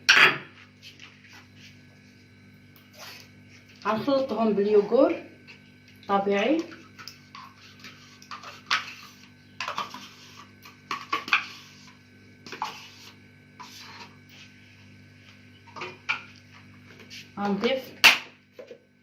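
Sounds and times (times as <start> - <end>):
low steady hum: 0.0 - 19.0
spoon scraping against a bowl: 2.9 - 3.3, 7.3 - 14.5.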